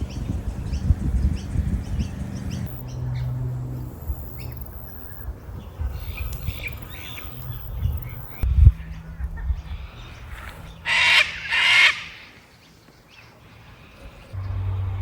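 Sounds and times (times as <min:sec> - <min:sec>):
steady low rumble: 0:00.0 - 0:12.6, 0:14.2 - 0:15.0
birds chirping: 0:00.0 - 0:15.0.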